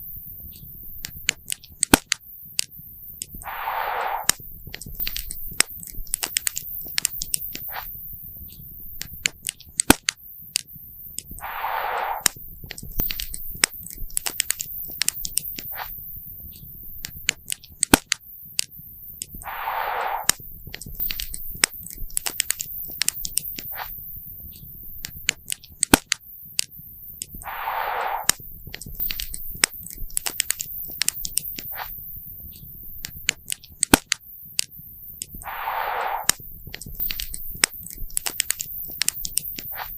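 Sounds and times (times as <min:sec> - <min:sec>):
short burst of hiss: 0:03.4 - 0:04.4, 0:11.4 - 0:12.3, 0:19.4 - 0:20.4, 0:27.4 - 0:28.4, 0:35.4 - 0:36.4.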